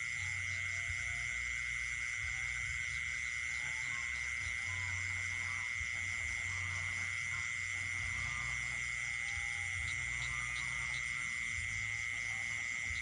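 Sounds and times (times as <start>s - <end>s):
frogs calling: 0.0s - 13.0s
insect steady trill: 0.0s - 13.0s
insects pulsing calls: 0.0s - 13.0s.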